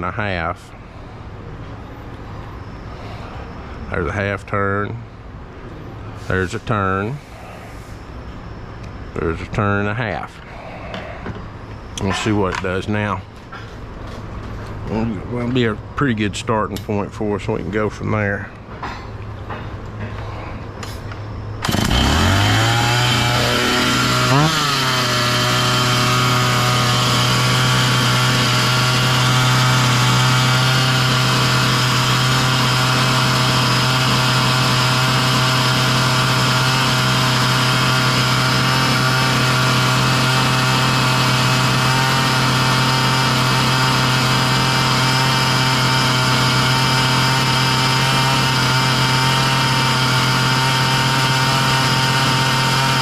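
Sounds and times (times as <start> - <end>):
chainsaw engine revving and idling: 21.6 - 53.0.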